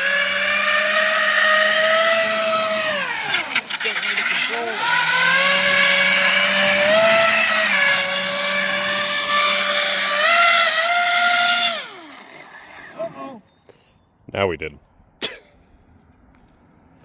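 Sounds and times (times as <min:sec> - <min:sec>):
electric motor and propeller whine: 0:00.0 - 0:13.4.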